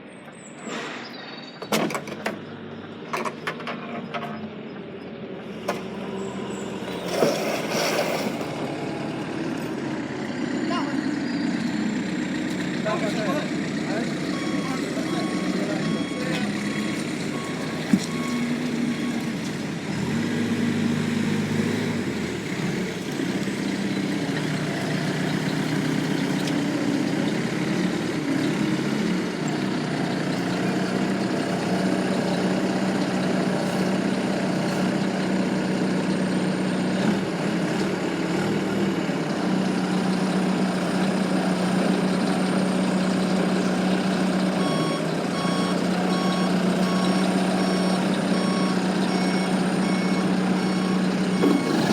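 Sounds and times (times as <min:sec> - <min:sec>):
truck diesel engine running: 0:04.4 - 0:51.9
reversing alarm beeps: 0:14.2 - 0:19.3, 0:44.2 - 0:51.9.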